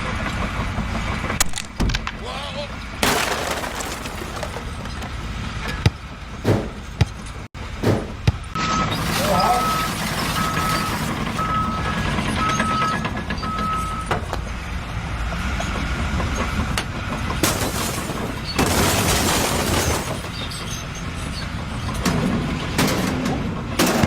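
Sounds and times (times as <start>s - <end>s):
heavy truck engine running: 4.4s - 24.0s
reversing alarm beeping: 8.6s - 14.2s.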